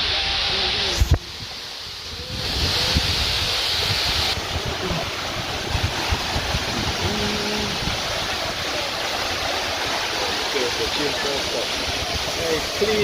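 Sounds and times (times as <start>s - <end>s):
rushing water: 0.0s - 13.0s
wind buffeting microphone: 0.8s - 9.5s.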